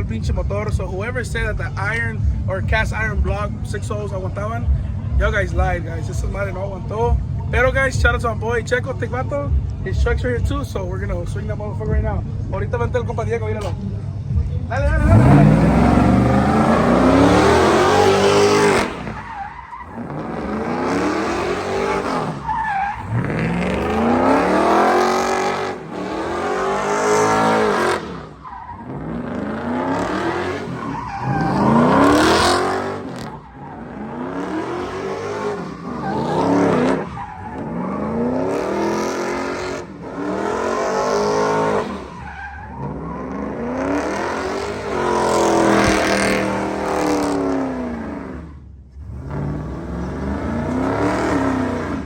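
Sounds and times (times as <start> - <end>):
truck engine revving: 14.8 - 52.0.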